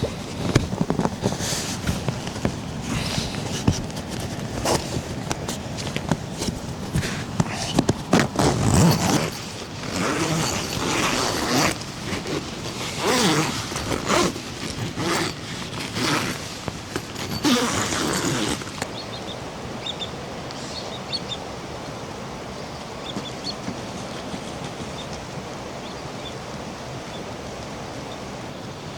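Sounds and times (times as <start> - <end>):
close rustling and handling noises: 0.0 - 18.9, 23.0 - 25.8
rushing water: 0.0 - 28.9.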